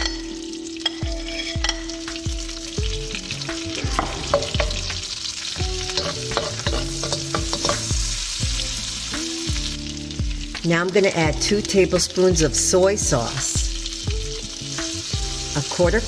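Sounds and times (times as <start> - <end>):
metal utensil scraping pan: 0.0 - 2.1, 5.8 - 8.1
garlic sizzling in butter: 0.0 - 16.0.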